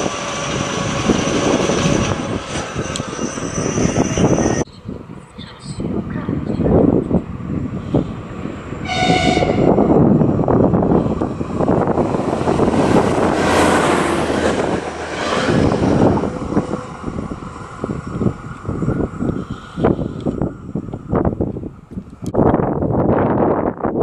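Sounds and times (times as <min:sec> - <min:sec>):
train rushing and clattering past: 0:00.0 - 0:04.6, 0:06.7 - 0:21.4
two-tone train horn: 0:08.8 - 0:09.9.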